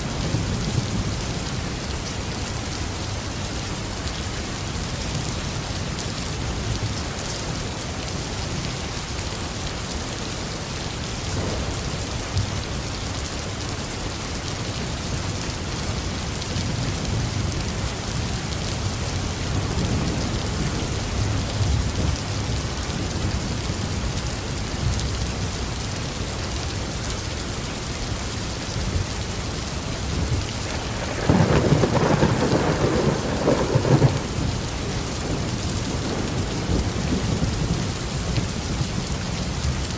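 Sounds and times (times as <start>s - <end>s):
heavy rain on a roof: 0.0s - 39.9s
thunder rumbling: 11.2s - 13.0s, 30.2s - 39.3s
crackling thunderclap: 11.2s - 13.2s, 30.1s - 39.3s.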